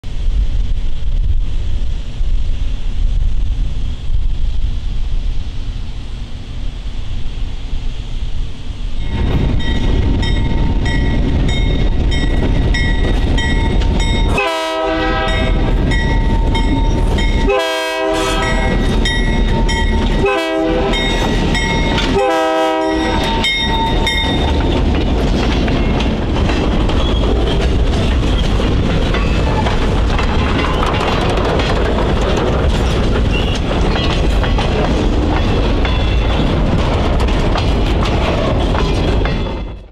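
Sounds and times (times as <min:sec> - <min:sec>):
locomotive bell ringing: 0:09.0 - 0:14.6, 0:15.2 - 0:17.7, 0:18.3 - 0:24.6, 0:35.4 - 0:36.4, 0:38.9 - 0:39.9
train horn blasts: 0:14.2 - 0:15.7, 0:17.4 - 0:18.9, 0:20.1 - 0:21.3, 0:22.1 - 0:23.7
wheels clacking over track: 0:23.0 - 0:39.9.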